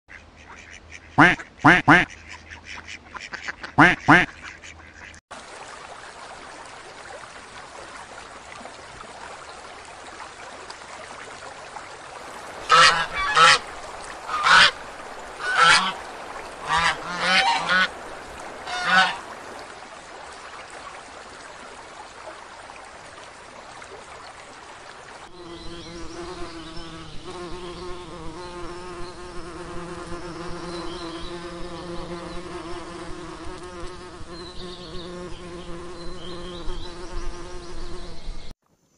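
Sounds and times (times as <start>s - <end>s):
goose honking: 0.4s - 5.1s, 12.6s - 13.7s, 14.3s - 14.8s, 15.4s - 16.0s, 16.6s - 18.0s, 18.6s - 19.3s
background hiss: 12.1s - 20.7s
insect buzzing: 25.3s - 38.5s.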